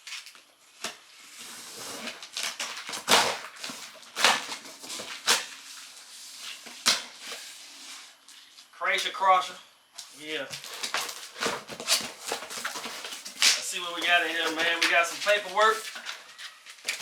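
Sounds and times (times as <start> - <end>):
cardboard box rustling and scraping: 1.2 - 8.2, 10.6 - 17.0
loud cardboard scuffs: 1.4 - 7.6, 10.6 - 17.0.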